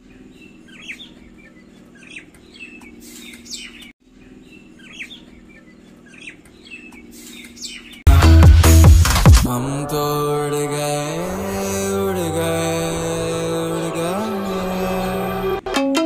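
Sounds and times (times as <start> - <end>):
small birds chirping: 0.0 - 8.1
loud chanted music: 9.4 - 15.7.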